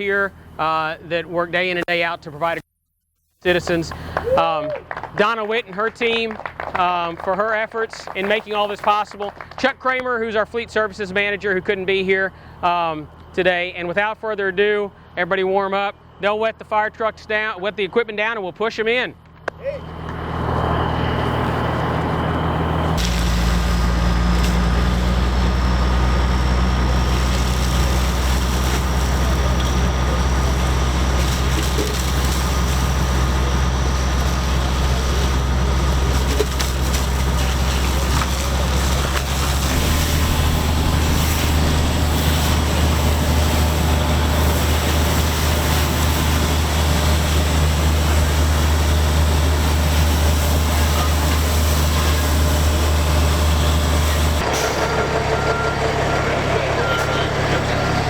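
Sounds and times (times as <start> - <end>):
fire truck engine droning: 10.4 - 13.9, 19.2 - 58.0.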